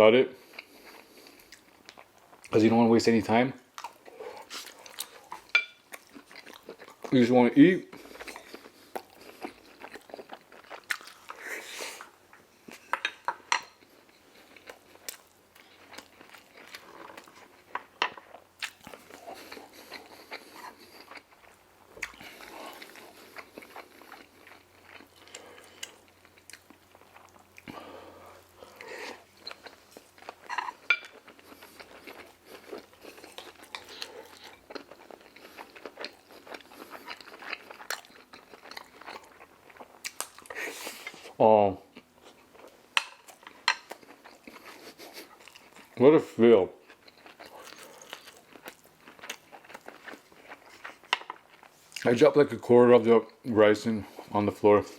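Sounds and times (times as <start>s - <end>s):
crunchy bites and chewing: 46.8s - 52.1s.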